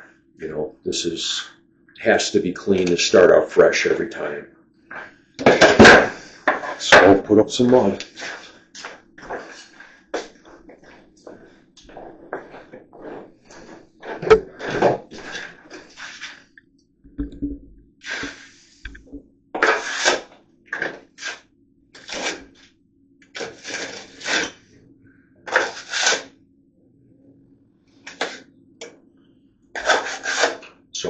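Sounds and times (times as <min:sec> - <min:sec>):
trowel scraping wet plaster: 0:19.6 - 0:21.4, 0:22.0 - 0:22.6, 0:23.4 - 0:24.6, 0:25.5 - 0:26.3, 0:29.8 - 0:30.7.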